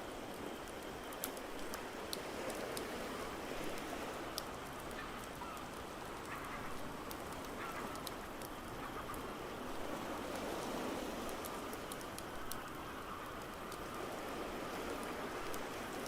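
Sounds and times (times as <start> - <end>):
rain: 0.0 - 16.0
wood fire crackling: 0.0 - 16.0
faint bird calls: 5.0 - 5.7.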